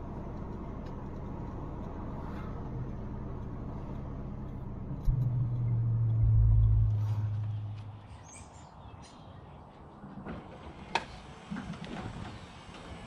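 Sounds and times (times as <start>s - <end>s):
road noise: 0.0s - 13.0s
car engine running: 2.7s - 8.1s.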